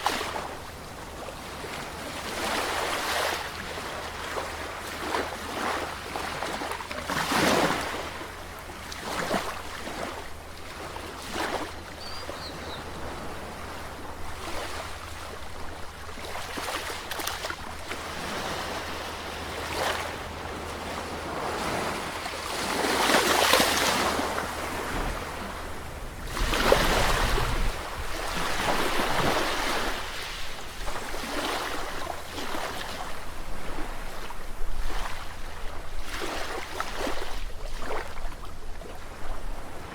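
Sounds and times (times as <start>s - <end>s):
sea waves breaking: 0.0s - 38.3s
low rumble of surf: 0.0s - 39.9s.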